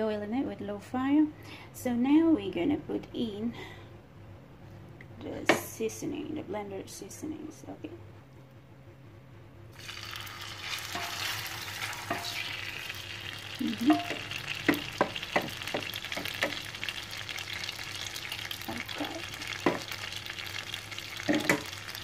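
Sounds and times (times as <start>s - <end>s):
paste sizzling in hot oil: 9.7s - 22.0s.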